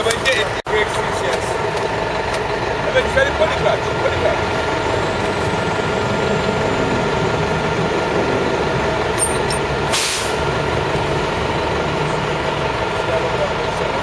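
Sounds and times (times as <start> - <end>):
traffic noise: 0.0 - 14.0
vehicle engine running: 0.0 - 14.0
short sharp hiss: 9.9 - 10.4.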